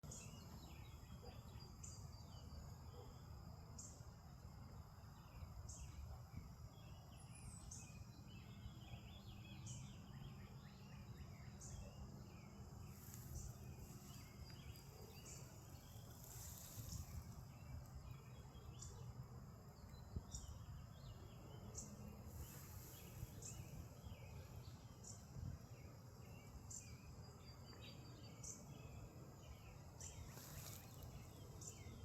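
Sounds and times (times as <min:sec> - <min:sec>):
birds twittering: 0:06.8 - 0:32.0.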